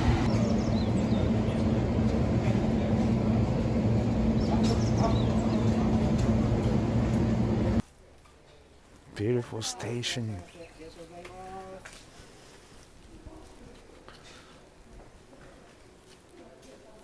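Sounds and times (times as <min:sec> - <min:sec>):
electric train humming: 0:00.0 - 0:07.8.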